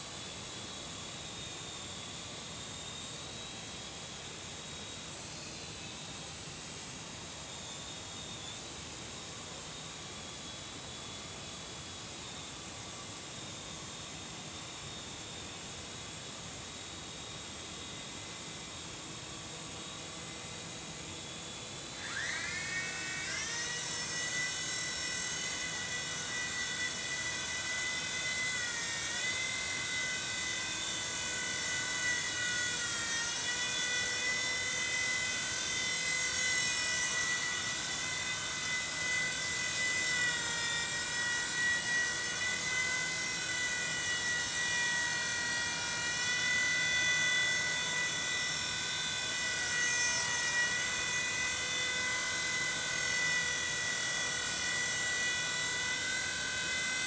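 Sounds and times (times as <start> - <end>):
toy helicopter motor whining: 0.0 - 6.8, 7.4 - 57.0.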